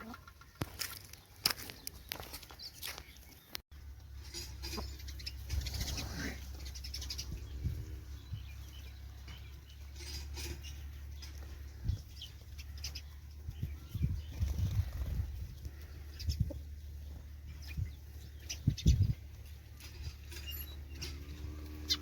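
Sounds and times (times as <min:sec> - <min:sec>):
rustles and scuffles: 0:00.5 - 0:03.6.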